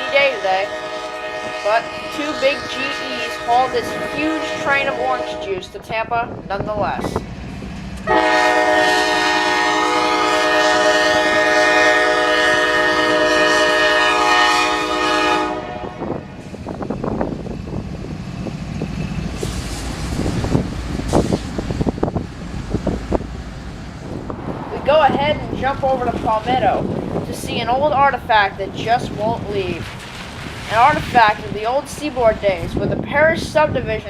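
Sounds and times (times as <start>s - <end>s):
locomotive horn blast: 0.0s - 5.7s, 8.0s - 16.4s
train rumbling and clattering past: 0.0s - 34.0s.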